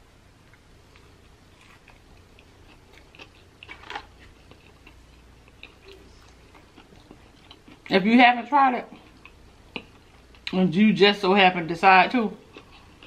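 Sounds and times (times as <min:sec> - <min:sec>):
chewing crunchy fried chicken: 0:00.4 - 0:08.0, 0:08.9 - 0:10.6, 0:12.4 - 0:13.0.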